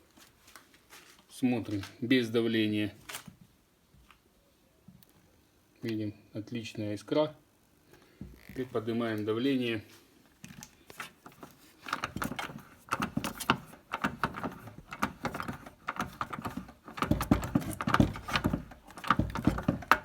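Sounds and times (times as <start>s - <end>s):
sharp clicks and knocks: 10.4s - 20.0s.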